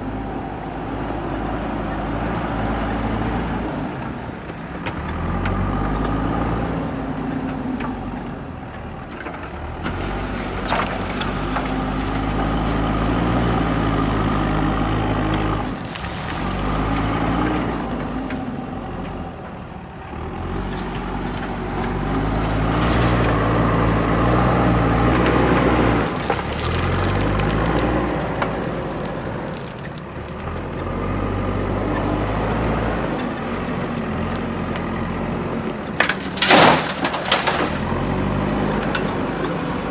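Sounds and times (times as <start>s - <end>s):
diesel engine revving: 0.0s - 39.9s.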